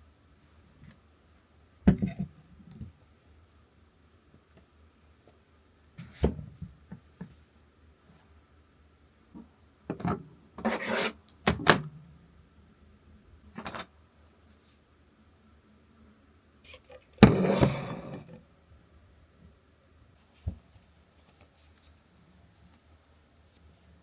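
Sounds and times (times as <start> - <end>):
rubbing and rustling: 20.2 - 24.0.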